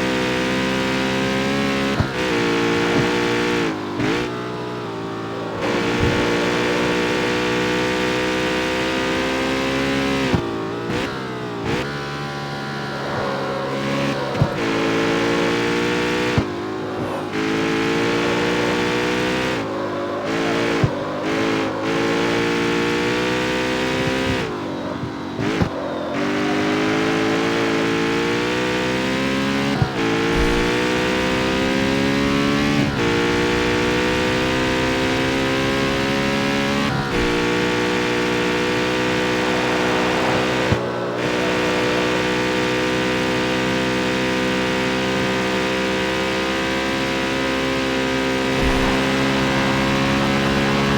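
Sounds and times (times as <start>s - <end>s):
car engine accelerating through gears: 0.0s - 50.9s
exhaust cracks: 27.6s - 44.4s, 47.2s - 50.9s.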